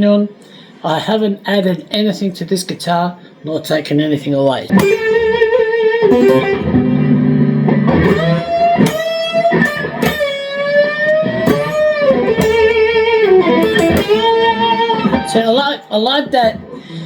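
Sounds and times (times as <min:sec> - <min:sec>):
electric guitar notes: 0:04.7 - 0:17.0.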